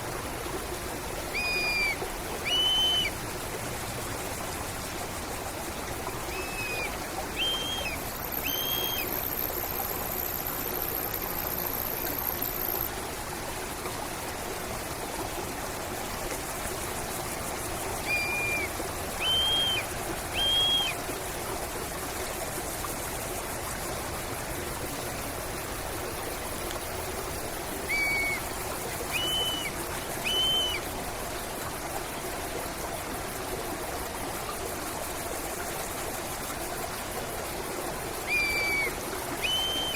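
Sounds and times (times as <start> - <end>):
stream flowing: 0.0 - 39.9
bird calling short notes: 1.4 - 3.1, 18.1 - 19.8, 20.4 - 21.0, 27.9 - 28.4, 29.1 - 30.8, 38.3 - 39.9.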